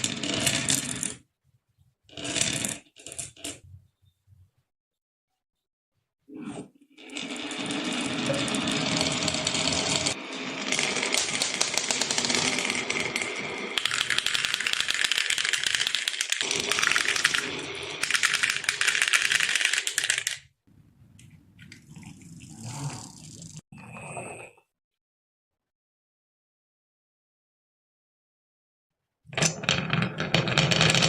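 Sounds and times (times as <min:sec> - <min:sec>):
marbles rattling down wooden run: 0:07.1 - 0:20.4.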